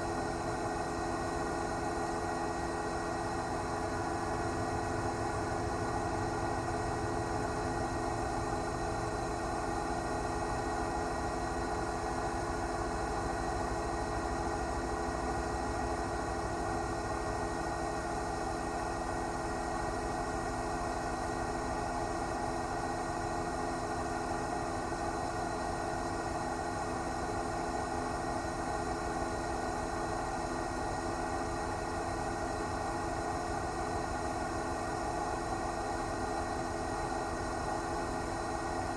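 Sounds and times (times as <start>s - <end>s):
helicopter engine and rotor: 0.0s - 20.6s.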